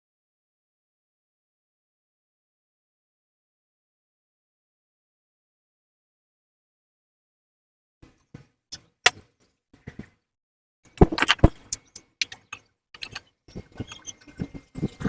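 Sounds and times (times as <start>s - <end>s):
metallic clicks of hand tools: 11.0s - 13.2s.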